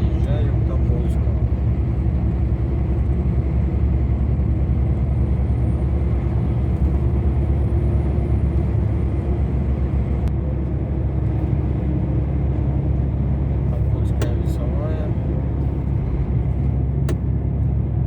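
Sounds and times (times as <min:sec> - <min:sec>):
truck engine and tyre rumble: 0:00.0 - 0:18.0.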